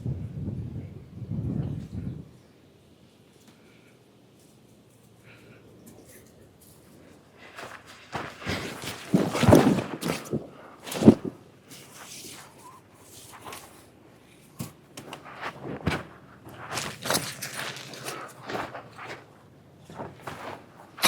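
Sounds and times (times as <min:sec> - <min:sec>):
rustling: 0:03.3 - 0:21.0
irregular thuds and knocks: 0:08.1 - 0:11.4, 0:14.6 - 0:19.2.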